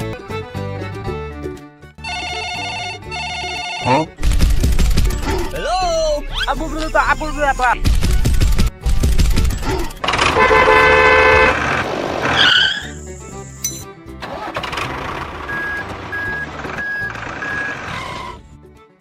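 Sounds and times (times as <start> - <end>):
background music with steady bass: 0.0 - 11.6, 12.7 - 17.6
cartoon vehicle horn toot: 2.0 - 4.1, 10.1 - 11.7
short gliding squeak: 12.3 - 13.9.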